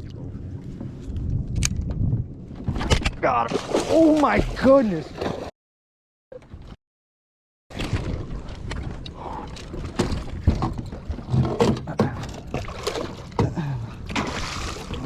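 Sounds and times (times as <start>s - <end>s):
water splashing: 3.4s - 5.5s, 14.1s - 15.0s.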